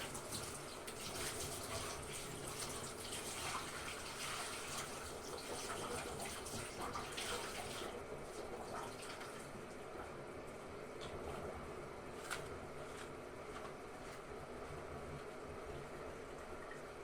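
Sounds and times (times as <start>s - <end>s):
water rushing into washing machine: 0.0s - 10.1s.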